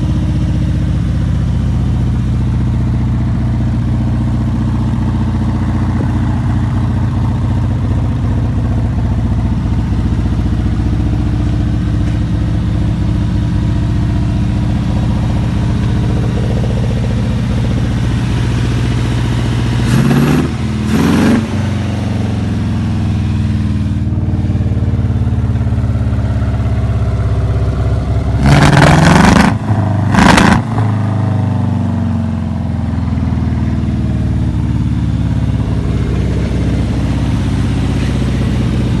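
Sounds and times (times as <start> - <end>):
tractor engine idling: 0.0 - 28.4, 30.9 - 39.0
engine revving with throttle blips: 14.0 - 25.3, 27.9 - 32.1.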